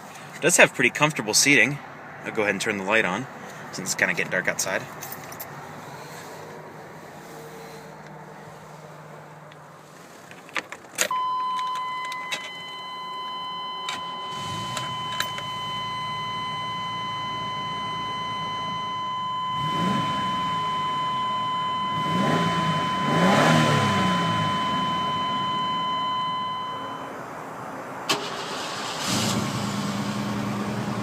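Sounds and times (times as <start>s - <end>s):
warning buzzer steady tone: 11.1s - 27.1s.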